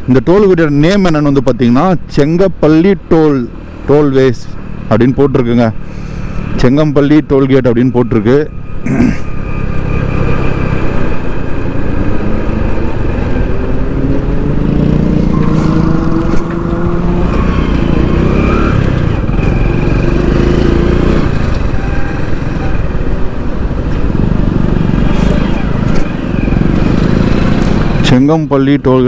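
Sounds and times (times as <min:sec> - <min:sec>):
wind and road noise: 0:00.0 - 0:29.0
motorcycle engine running: 0:09.8 - 0:28.1.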